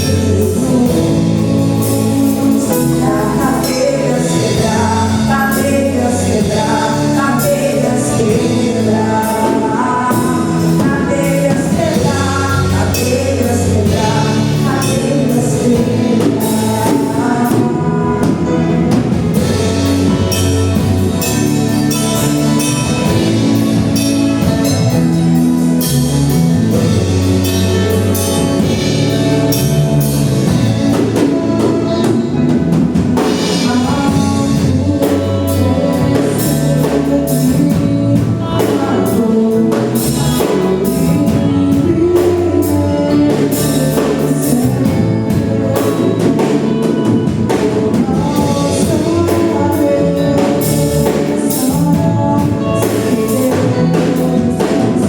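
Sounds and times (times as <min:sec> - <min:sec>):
gospel band with drum kit: 0:00.0 - 0:55.0
person singing: 0:00.0 - 0:55.0.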